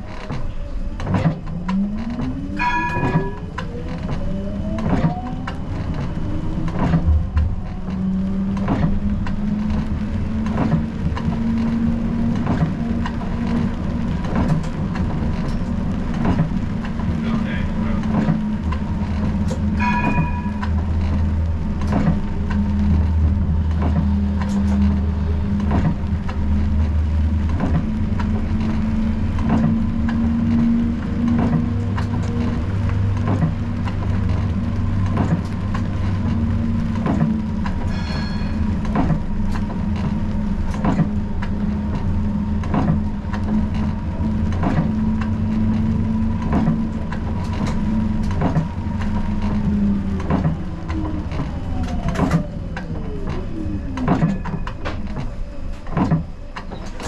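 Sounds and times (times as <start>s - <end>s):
tram running hum: 0.0s - 57.0s
high ringing tone: 2.6s - 3.5s, 19.8s - 20.7s, 37.9s - 38.6s.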